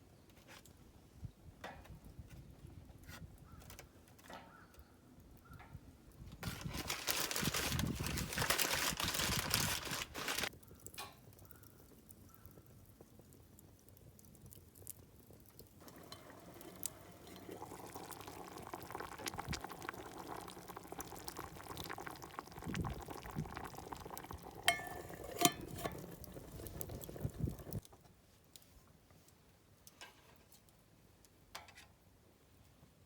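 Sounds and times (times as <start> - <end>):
liquid bubbling and crackling: 6.4 - 28.0.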